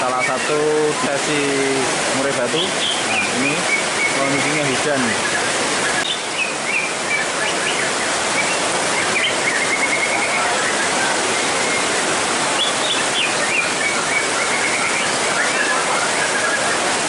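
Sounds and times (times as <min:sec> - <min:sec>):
heavy rain pouring: 0:00.0 - 0:17.0
bird singing whistles and trills: 0:02.6 - 0:10.8, 0:12.6 - 0:16.6.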